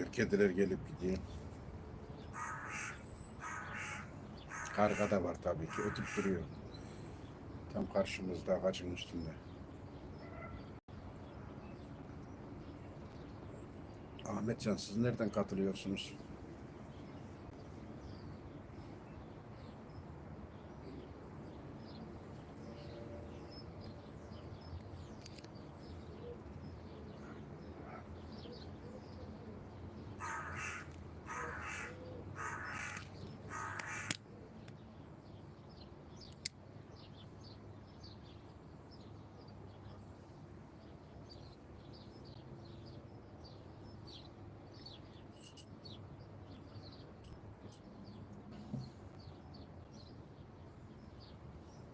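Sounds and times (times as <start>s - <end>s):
small birds chirping: 0.0s - 51.9s
crow cawing: 2.3s - 6.4s, 30.2s - 34.2s.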